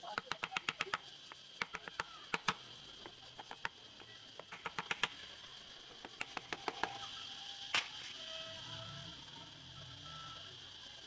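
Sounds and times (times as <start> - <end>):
tools clicking and tapping: 0.1 - 2.6, 3.4 - 3.8, 4.4 - 5.1, 6.0 - 7.0
faint high-pitched tone: 7.0 - 11.0.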